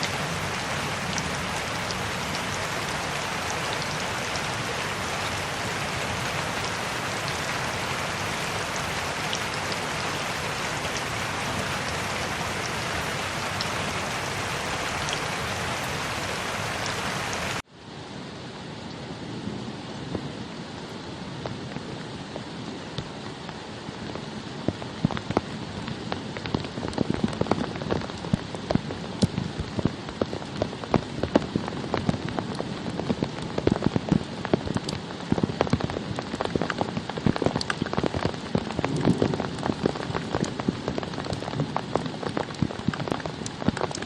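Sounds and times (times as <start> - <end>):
raindrops tapping: 0.0 - 17.6, 24.7 - 44.0
dense rain falling: 0.0 - 44.0.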